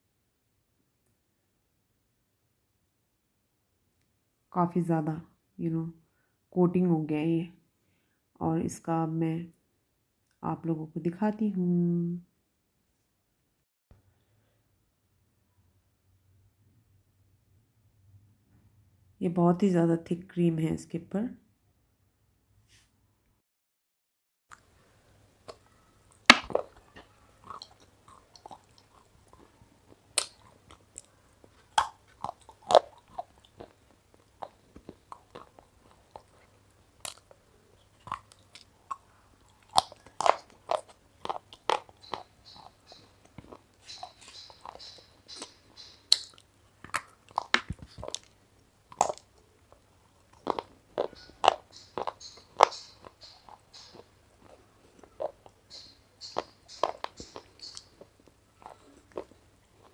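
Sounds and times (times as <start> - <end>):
crunchy biting and chewing: 24.5 - 59.9
wet mouth and lip sounds: 25.4 - 59.9.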